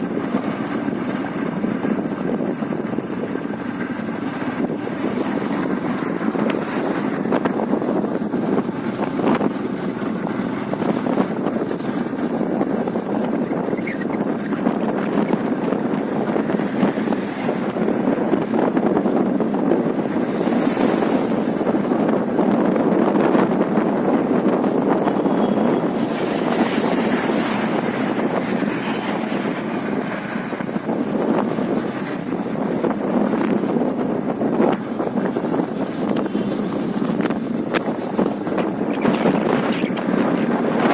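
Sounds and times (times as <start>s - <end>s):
vehicle road and wind noise: 0.0s - 40.9s.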